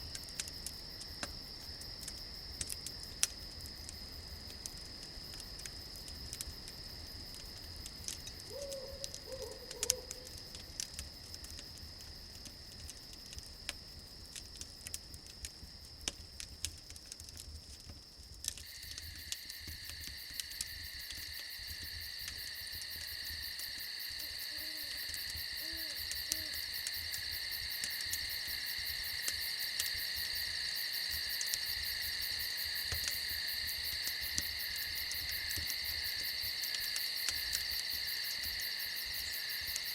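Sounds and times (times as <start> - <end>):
crickets chirping: 0.0 - 39.9
fire crackling clicks: 0.0 - 39.9
owl hooting: 8.5 - 10.2.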